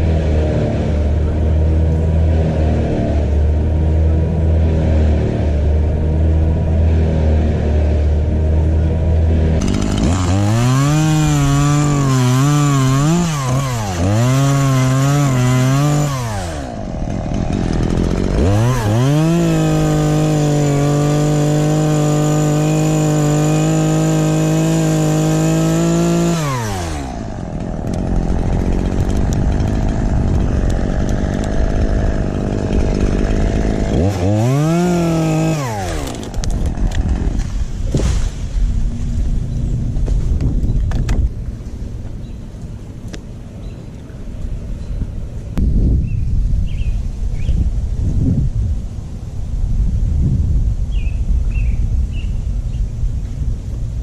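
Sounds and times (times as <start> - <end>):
chainsaw revving: 0.0 - 38.2.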